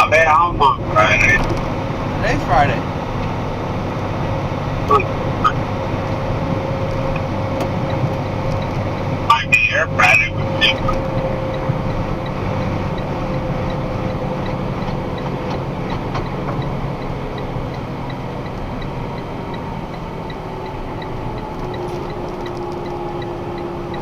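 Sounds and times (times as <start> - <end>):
truck engine and road noise: 0.0 - 24.0
turn signal ticking: 0.0 - 24.0.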